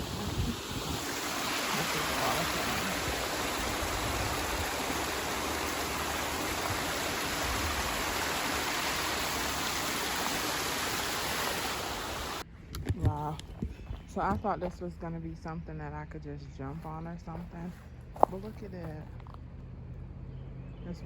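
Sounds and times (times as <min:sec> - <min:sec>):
waterfall and stream rushing: 0:00.0 - 0:12.4.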